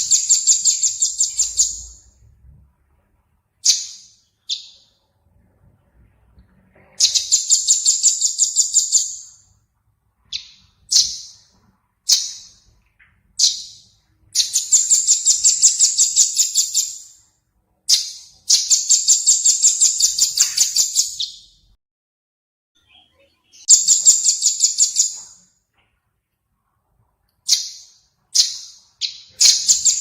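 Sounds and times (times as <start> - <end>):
songbird trilling: 0.0 - 2.0.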